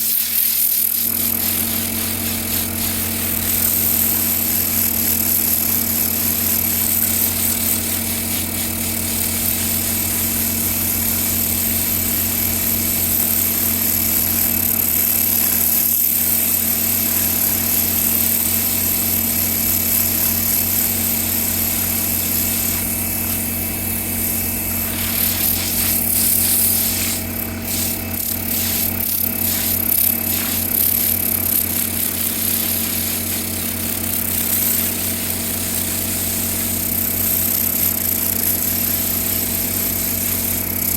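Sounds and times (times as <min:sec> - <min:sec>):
short scratchy bursts: 0:00.0 - 0:10.5, 0:14.4 - 0:35.4
small electric motor humming: 0:00.0 - 0:40.9.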